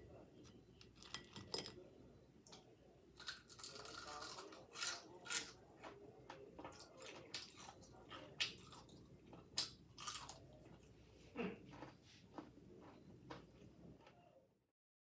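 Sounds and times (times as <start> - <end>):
crunching and chewing fried chicken: 3.2 - 11.0, 11.6 - 13.5.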